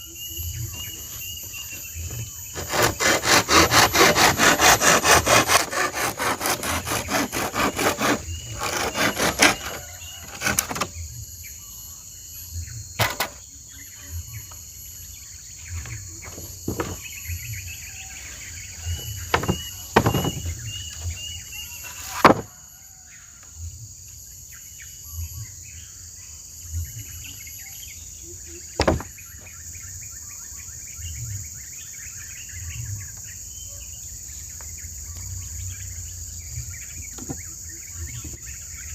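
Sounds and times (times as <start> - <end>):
crickets and insects droning: 0.0 - 4.4, 5.5 - 38.9
hand saw cutting wood: 2.0 - 10.9, 16.7 - 17.0, 18.8 - 20.6, 21.8 - 22.5, 28.8 - 29.1
knocks and taps on wood: 16.2 - 17.0, 19.3 - 20.5, 28.8 - 29.1.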